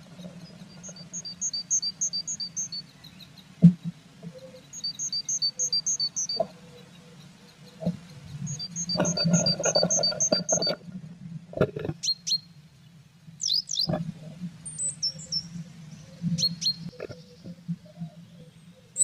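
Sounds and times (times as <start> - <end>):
high bird chirps: 4.7 - 6.4, 13.4 - 13.9.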